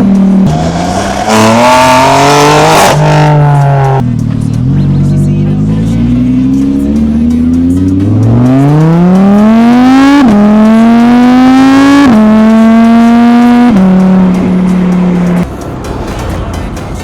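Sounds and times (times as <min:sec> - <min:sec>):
sports car engine accelerating: 0:00.0 - 0:15.6.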